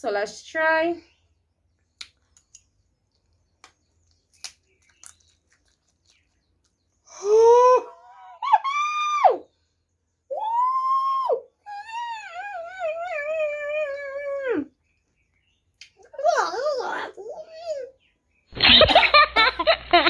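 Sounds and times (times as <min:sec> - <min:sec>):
faint chewing clicks: 0:01.8 - 0:07.0.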